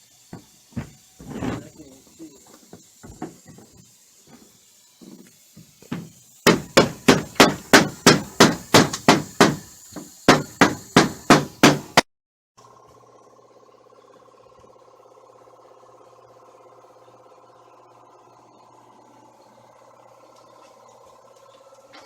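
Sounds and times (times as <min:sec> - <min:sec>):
hammer blows: 0:05.9 - 0:12.0.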